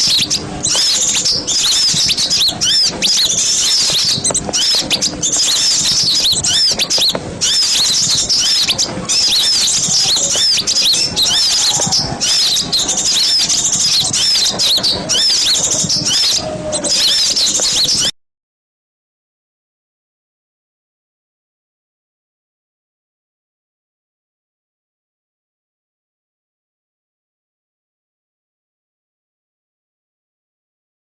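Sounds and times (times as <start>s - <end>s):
flock of small birds chirping: 0.0s - 18.1s.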